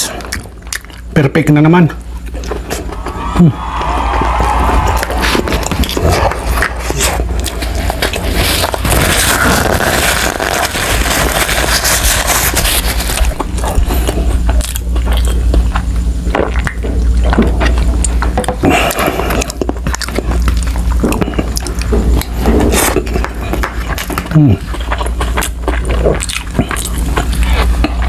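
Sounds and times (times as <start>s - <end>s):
chewing soft food: 0.0s - 28.0s
low hum: 1.8s - 28.0s
paper tissue rustling: 4.4s - 14.2s.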